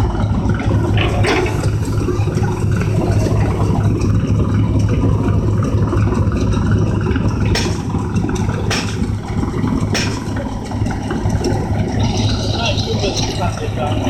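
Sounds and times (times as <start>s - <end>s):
engine idling: 0.0s - 14.0s
short sharp knocks: 7.5s - 8.0s, 8.7s - 9.2s, 9.9s - 10.4s.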